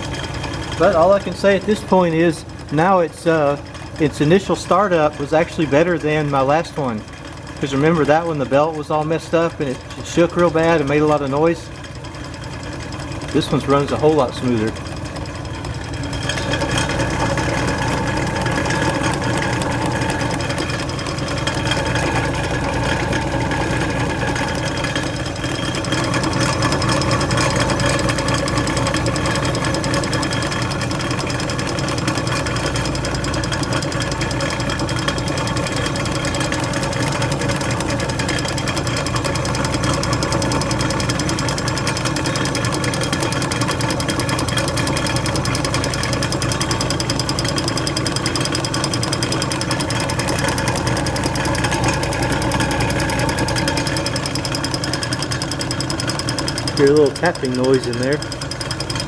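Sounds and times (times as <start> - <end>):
refrigerator compressor humming: 0.0 - 59.0.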